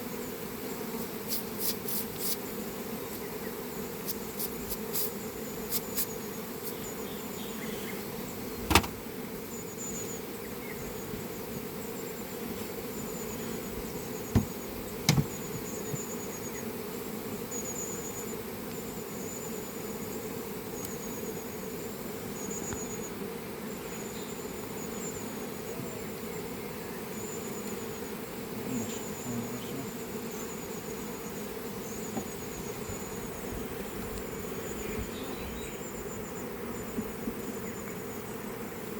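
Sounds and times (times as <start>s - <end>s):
bees buzzing: 0.0s - 38.9s
sharp knock: 8.7s - 9.0s, 14.4s - 15.4s.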